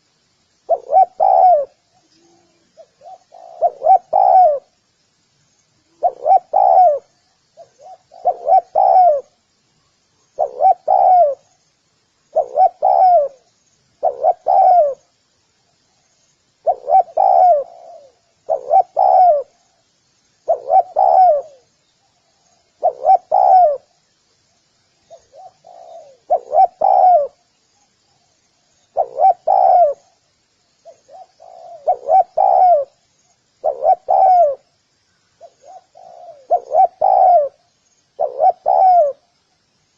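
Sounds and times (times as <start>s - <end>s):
small birds chirping: 0.0s - 39.9s
dove cooing: 0.7s - 4.8s, 5.9s - 9.4s, 10.4s - 11.5s, 12.3s - 15.1s, 16.6s - 19.6s, 20.4s - 21.7s, 22.6s - 24.0s, 25.1s - 27.4s, 28.9s - 30.2s, 30.8s - 33.0s, 33.6s - 34.7s, 35.4s - 39.3s.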